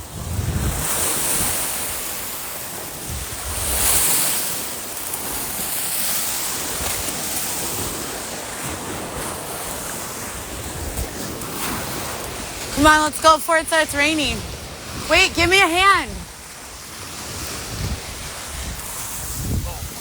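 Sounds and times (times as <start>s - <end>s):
wind buffeting microphone: 0.0s - 4.1s, 14.2s - 20.0s
waves washing onto beach: 0.0s - 20.0s.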